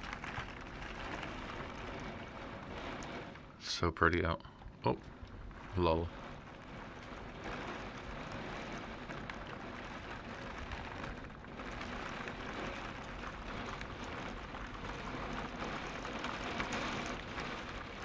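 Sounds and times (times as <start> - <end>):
rain patter: 0.0 - 18.0.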